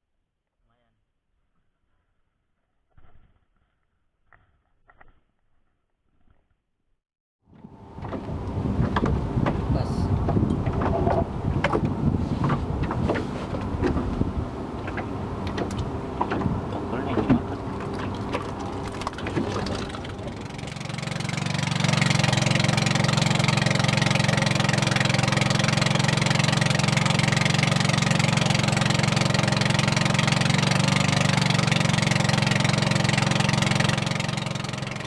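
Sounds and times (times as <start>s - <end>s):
boat engine running: 7.5s - 35.0s
knocks and clatter on board: 8.8s - 14.2s, 14.8s - 20.0s.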